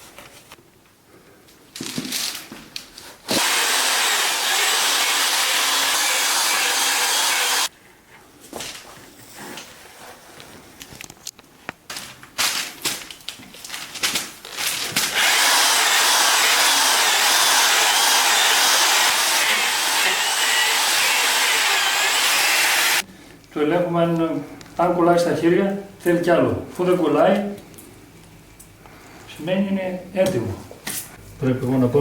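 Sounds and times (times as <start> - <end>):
electric drill with paddle mixer: 3.3 - 7.7, 15.0 - 23.0.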